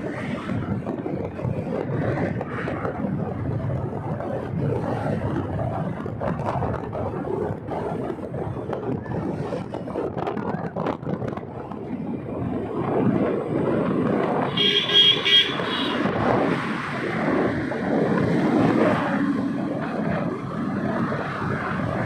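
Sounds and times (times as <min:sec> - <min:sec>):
motorcycle wind and road noise: 0:00.0 - 0:22.0
vehicle horn honking: 0:14.5 - 0:16.1.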